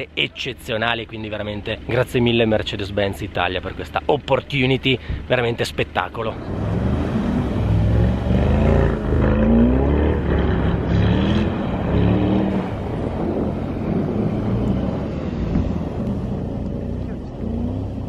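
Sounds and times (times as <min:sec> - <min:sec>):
car engine revving: 0:06.2 - 0:18.0.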